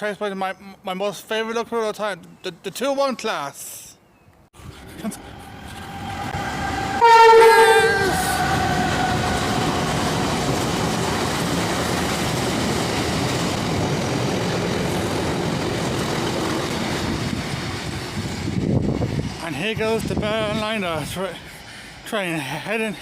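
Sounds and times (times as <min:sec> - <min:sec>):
train rumbling past: 0:04.6 - 0:22.5
locomotive horn blast: 0:05.6 - 0:10.5
rail clatter: 0:05.6 - 0:20.5.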